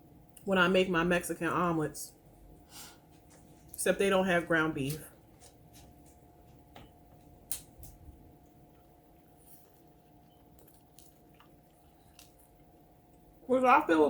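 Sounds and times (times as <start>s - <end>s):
faint steady hum: 0.0s - 14.0s
faint chewing: 4.9s - 13.3s.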